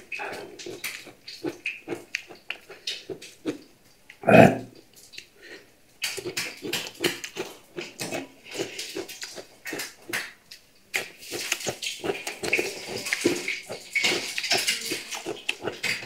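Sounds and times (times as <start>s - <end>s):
lip smacking: 0.0s - 5.3s, 6.0s - 16.0s
crunching raw cucumber: 6.0s - 16.0s.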